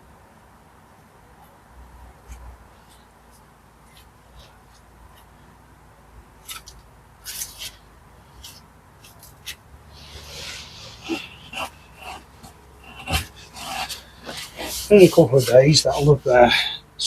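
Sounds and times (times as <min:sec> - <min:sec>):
tool scraping wet mortar and stone: 0:12.9 - 0:16.4.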